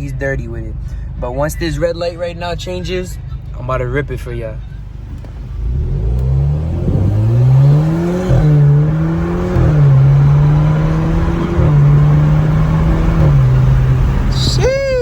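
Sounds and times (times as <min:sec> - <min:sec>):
car exhaust accelerating through gears: 0:04.6 - 0:15.0.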